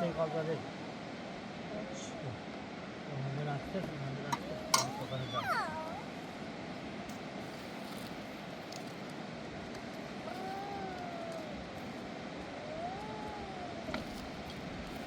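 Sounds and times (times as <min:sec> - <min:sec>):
mountain river rushing: 0:00.0 - 0:15.0
long wavering call: 0:04.4 - 0:06.1.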